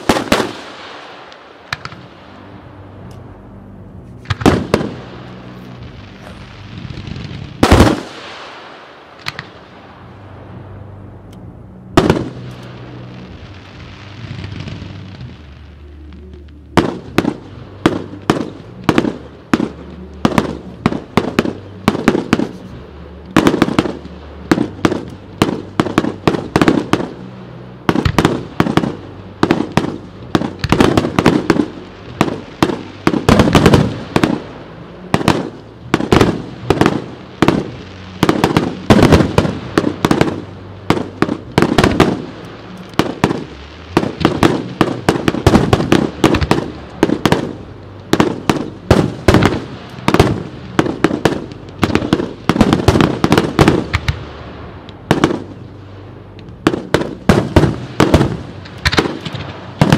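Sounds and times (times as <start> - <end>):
fireworks bangs and cracks: 0.0 - 3.2, 4.0 - 10.6, 11.9 - 59.9.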